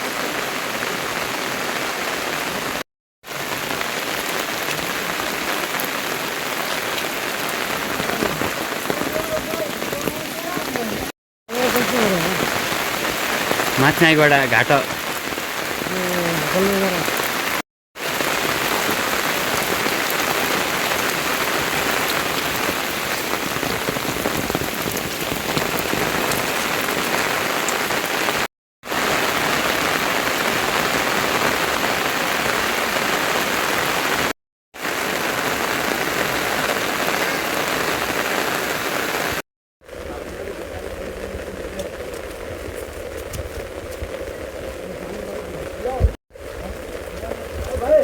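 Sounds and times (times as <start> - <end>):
steady rain hissing: 0.0 - 48.0.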